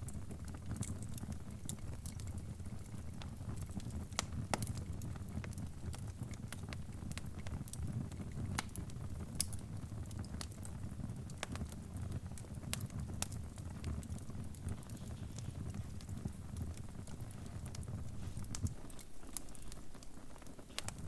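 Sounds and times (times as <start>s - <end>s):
low rumble of burning: 0.0s - 21.0s
wood fire popping and snapping: 0.0s - 21.0s.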